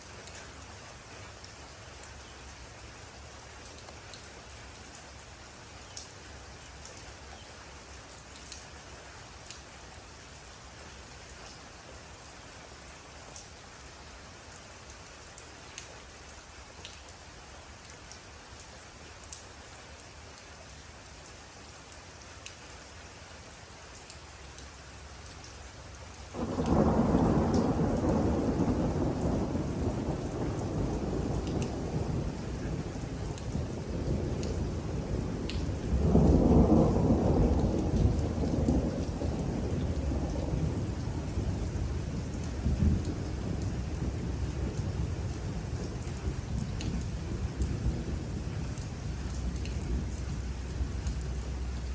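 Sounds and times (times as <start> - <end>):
steady rain: 0.0 - 51.9
raindrops ticking: 5.8 - 8.8, 24.0 - 51.9
thunder rumbling: 26.4 - 51.9.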